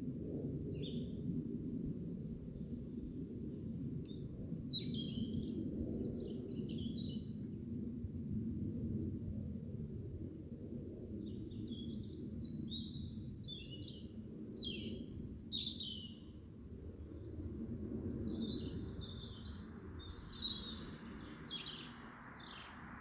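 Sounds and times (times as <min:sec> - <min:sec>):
songbird chirping and trilling: 0:04.1 - 0:07.4, 0:11.3 - 0:16.3, 0:17.2 - 0:23.0.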